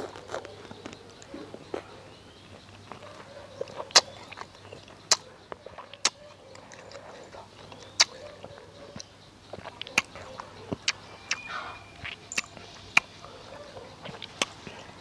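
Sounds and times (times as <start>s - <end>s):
person chewing: 0.0s - 15.0s
lip and tongue smacks: 2.6s - 13.1s, 13.7s - 15.0s.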